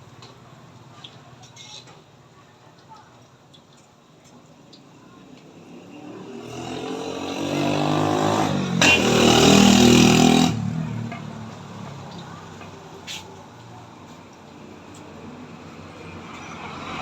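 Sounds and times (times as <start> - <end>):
vehicle engine passing by: 5.6 - 13.2.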